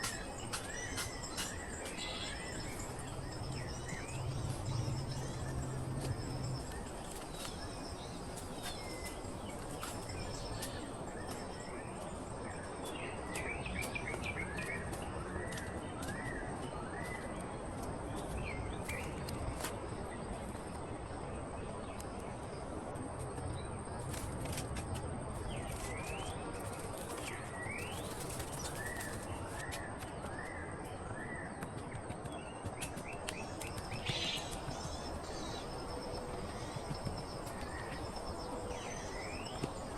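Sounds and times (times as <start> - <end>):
small birds chirping: 0.0 - 17.4, 32.2 - 39.9.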